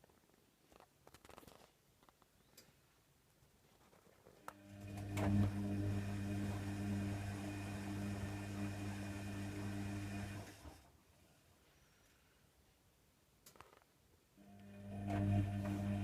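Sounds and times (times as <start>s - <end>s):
washer dryer humming: 4.6s - 10.8s, 14.4s - 16.0s.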